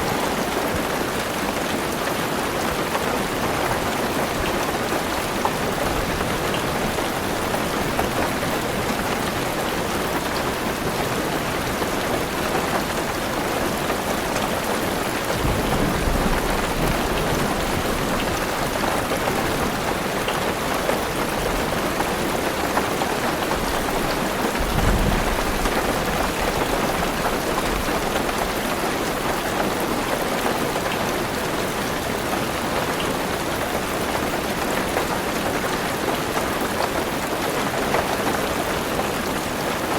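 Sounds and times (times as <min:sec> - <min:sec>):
heavy rain on car roof: 0:00.0 - 0:39.9
thunder rumbling: 0:15.3 - 0:18.5, 0:24.6 - 0:28.5.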